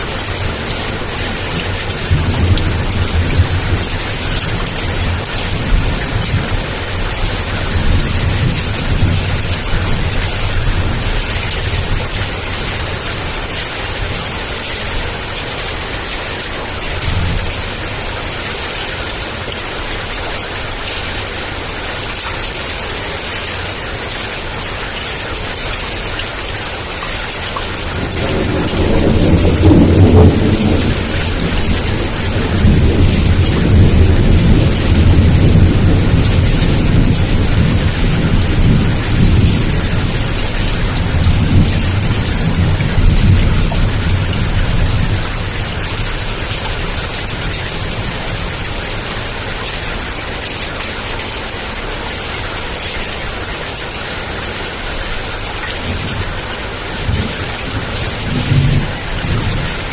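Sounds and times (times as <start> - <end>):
thunder rumbling: 0.0 - 14.4, 27.7 - 48.7, 55.8 - 59.9
heavy rain: 0.0 - 59.9.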